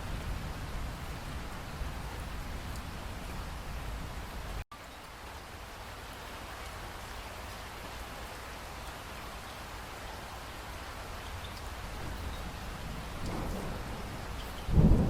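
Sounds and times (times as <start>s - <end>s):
steady rain hiss: 0.0s - 15.0s
raindrop ticks: 2.7s - 2.9s, 11.2s - 15.0s.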